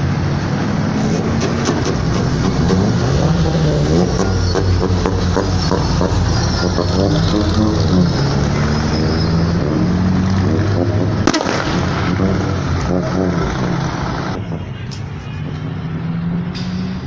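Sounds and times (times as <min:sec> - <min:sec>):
vehicle engines rumbling: 0:00.0 - 0:17.0
sharp bang: 0:11.2 - 0:12.2.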